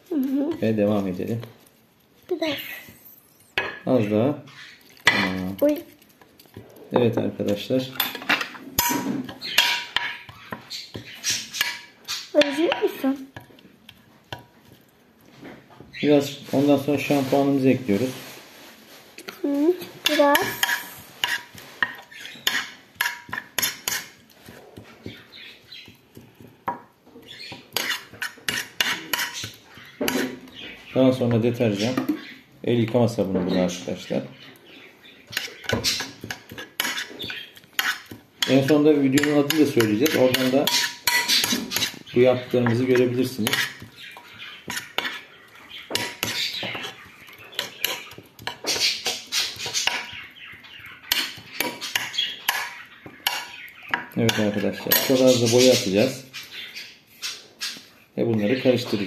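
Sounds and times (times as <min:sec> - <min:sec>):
stirring wet mixture: 0:03.8 - 0:59.0
spoon clinking against bowl: 0:37.8 - 0:42.0.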